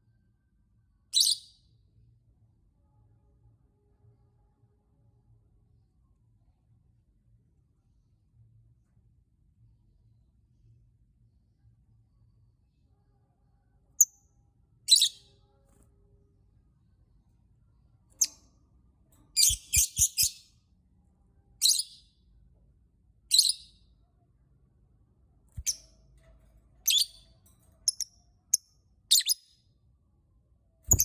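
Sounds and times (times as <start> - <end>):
lovebird chirping: 1.1 - 1.6, 14.9 - 15.3, 18.2 - 18.5, 19.4 - 20.5, 21.6 - 22.1, 23.3 - 23.8, 25.6 - 25.9, 26.8 - 27.2, 27.8 - 29.5.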